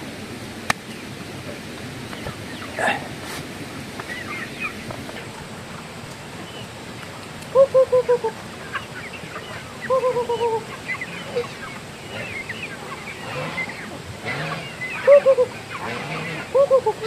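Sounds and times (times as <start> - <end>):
thin high calls from flock: 2.1 - 3.4, 4.0 - 17.0
ducks quacking loudly: 7.5 - 17.0.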